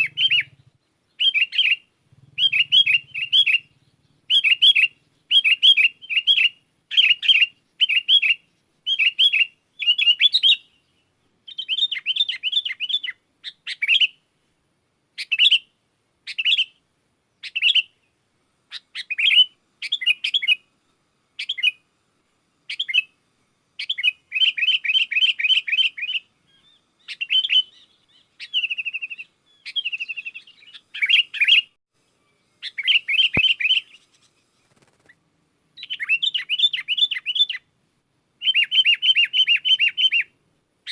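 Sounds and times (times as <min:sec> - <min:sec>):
bulbul chattering: 0:00.0 - 0:10.8, 0:32.6 - 0:35.2.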